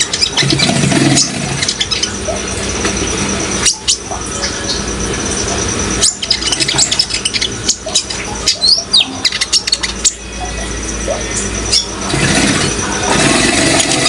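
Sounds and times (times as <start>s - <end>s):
sunbird chirping: 3.6s - 13.9s.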